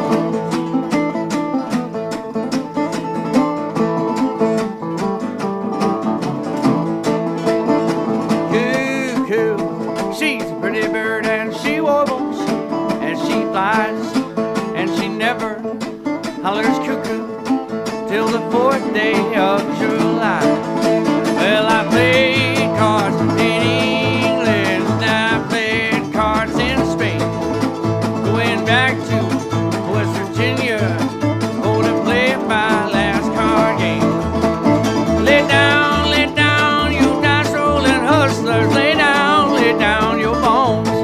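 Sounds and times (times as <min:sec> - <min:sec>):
picked acoustic guitar: 0:00.0 - 0:41.0
sliding resonator guitar notes: 0:00.0 - 0:41.0
low bass: 0:21.6 - 0:41.0.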